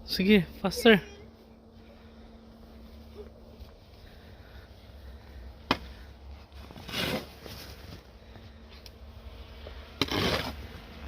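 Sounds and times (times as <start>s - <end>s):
shovel scraping snow: 6.6s - 8.0s, 9.9s - 11.0s.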